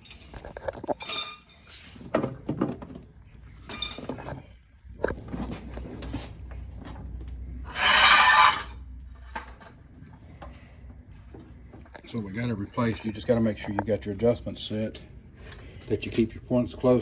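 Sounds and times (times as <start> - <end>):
metal tools clinking and knocking: 0.0 - 3.0, 3.6 - 4.5, 7.8 - 8.8.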